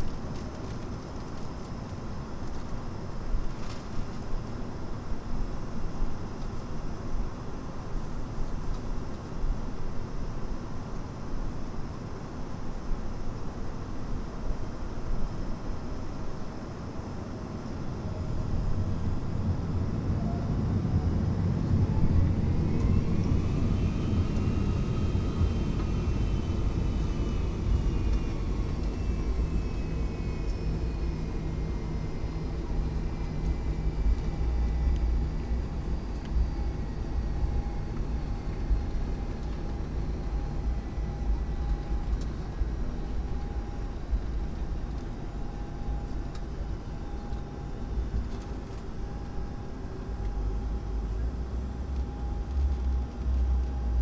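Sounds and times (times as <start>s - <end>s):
jet engines whining: 17.2s - 51.1s
heavy rumble: 17.5s - 54.0s.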